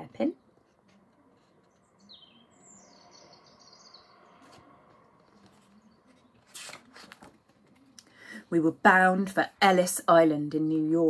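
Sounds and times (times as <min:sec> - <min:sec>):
falling bird chirp: 0:01.4 - 0:06.7
bird twittering: 0:01.8 - 0:04.5.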